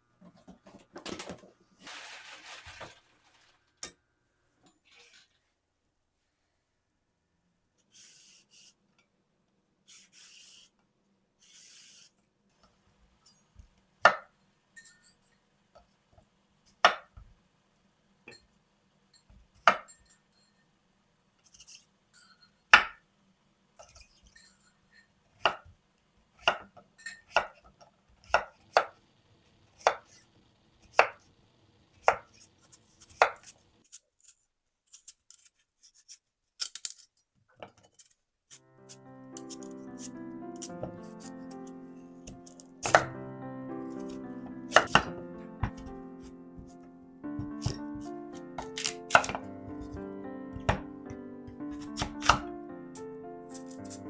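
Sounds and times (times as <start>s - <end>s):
knife chopping on cutting board: 16.8s - 17.1s, 26.4s - 26.7s, 28.2s - 28.9s, 29.8s - 30.2s, 30.9s - 31.2s, 32.0s - 33.5s, 39.4s - 43.2s, 44.0s - 54.0s.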